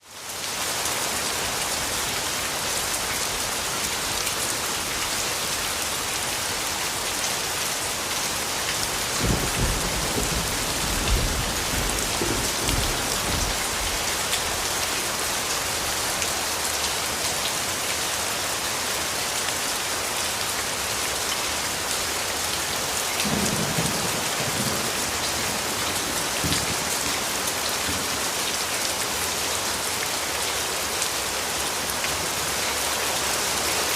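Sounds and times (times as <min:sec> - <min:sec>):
rainfall hissing: 0:00.0 - 0:33.9
distant thunder rumbling: 0:09.0 - 0:14.1.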